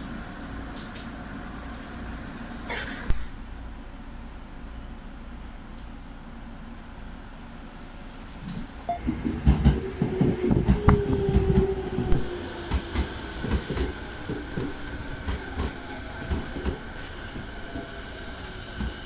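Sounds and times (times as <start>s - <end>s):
steady rumble: 0.0s - 19.0s
train wheels clattering over joints: 9.0s - 19.0s.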